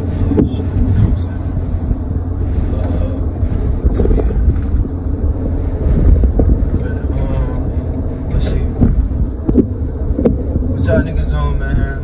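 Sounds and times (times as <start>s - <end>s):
car interior engine and road noise: 0.0s - 12.0s.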